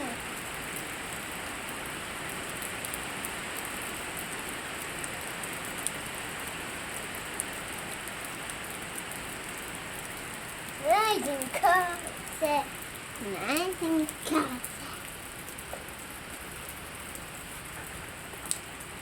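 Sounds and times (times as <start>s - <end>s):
rain pattering: 0.0s - 19.0s
sharp drips: 7.3s - 19.0s.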